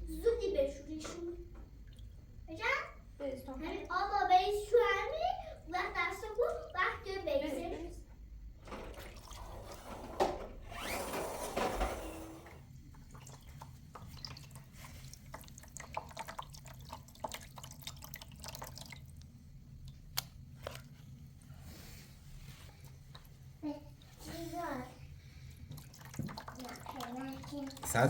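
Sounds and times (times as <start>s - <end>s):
water dripping: 1.0s - 4.8s, 12.8s - 21.1s, 23.1s - 28.0s
water pouring and splashing: 8.7s - 10.0s, 12.6s - 21.2s, 22.4s - 28.0s.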